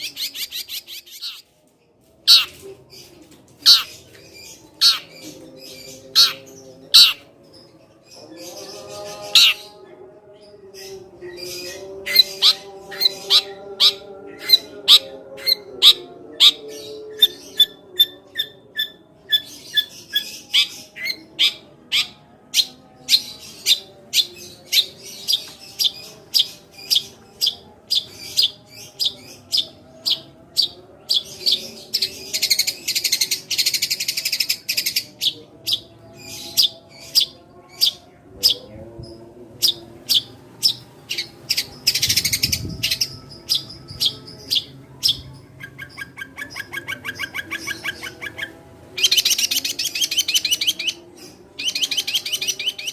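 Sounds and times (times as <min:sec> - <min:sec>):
bird chirping: 0:00.0 - 0:01.7, 0:02.3 - 0:52.9
bird rapid chatter: 0:02.3 - 0:02.6.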